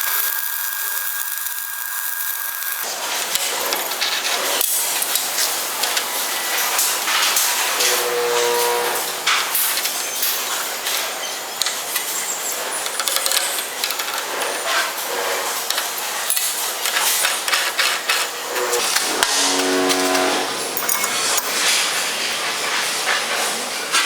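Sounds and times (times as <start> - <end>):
motor pitched tone: 7.8 - 9.1, 18.4 - 20.8.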